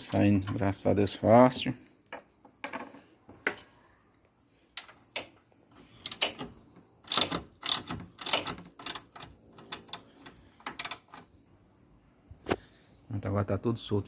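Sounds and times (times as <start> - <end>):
metallic rattles of tool and bolts: 4.8 - 11.4
ratchet wrench clicking: 6.0 - 6.4, 7.1 - 11.2.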